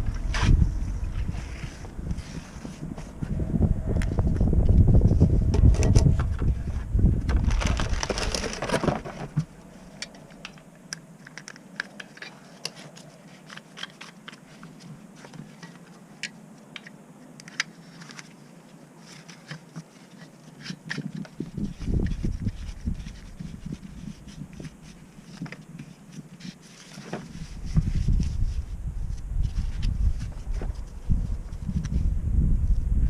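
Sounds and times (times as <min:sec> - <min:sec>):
low rumbling noise: 0:00.0 - 0:10.9, 0:27.4 - 0:33.0.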